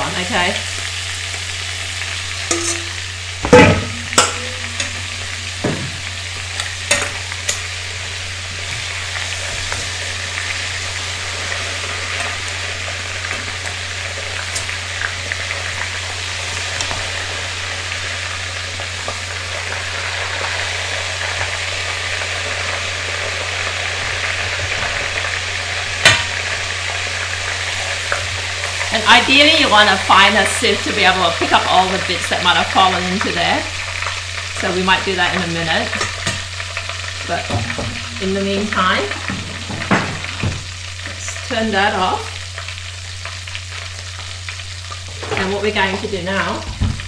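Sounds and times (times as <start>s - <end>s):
crab frying in hot oil: 0.0s - 47.0s
low steady hum: 2.3s - 19.2s
metal tongs clanking on pot: 2.5s - 5.2s, 6.6s - 7.8s.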